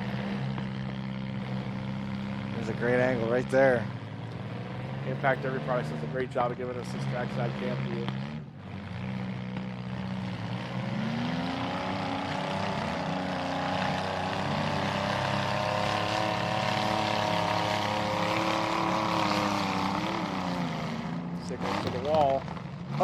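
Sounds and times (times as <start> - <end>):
truck engine revving high: 0.0 - 23.0
truck engine running low: 0.0 - 23.0.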